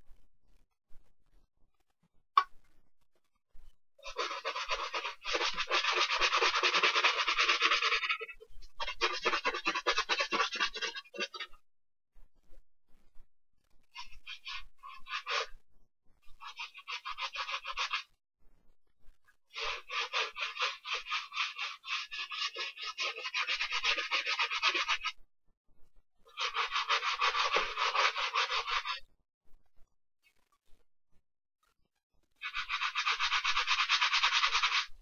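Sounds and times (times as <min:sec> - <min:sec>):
brush scrubbing a sneaker: 0:04.0 - 0:11.5, 0:14.0 - 0:15.5, 0:16.4 - 0:18.1, 0:19.5 - 0:25.2, 0:26.3 - 0:29.0, 0:32.4 - 0:35.0.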